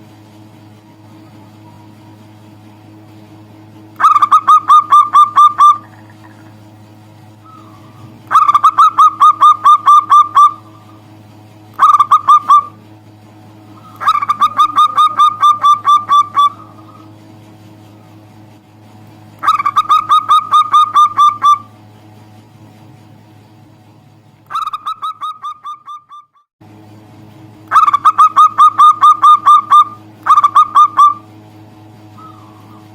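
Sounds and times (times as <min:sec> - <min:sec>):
low electrical hum: 0:00.0 - 0:32.9
dove cooing: 0:04.0 - 0:06.6, 0:07.4 - 0:11.0, 0:11.8 - 0:12.8, 0:13.7 - 0:17.2, 0:19.4 - 0:21.7, 0:24.5 - 0:26.3, 0:27.7 - 0:31.2, 0:32.2 - 0:32.9.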